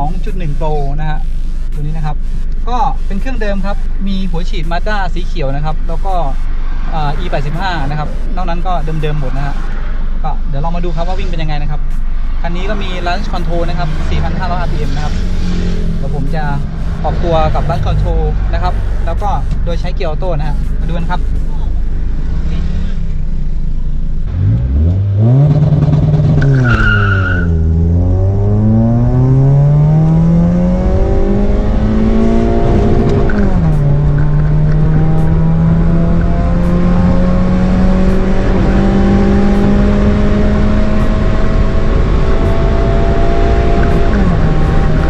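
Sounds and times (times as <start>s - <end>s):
car engine revving: 0.0s - 45.0s
tyre squeal: 26.4s - 27.6s.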